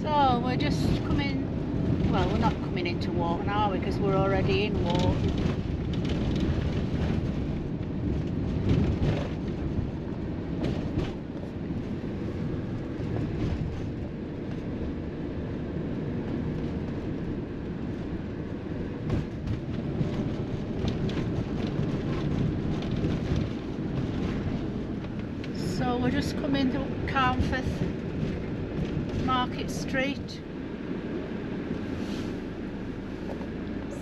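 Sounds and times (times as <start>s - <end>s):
engine and tyre rumble: 0.0s - 34.0s
knocks and rattles: 4.4s - 11.4s, 19.0s - 25.6s.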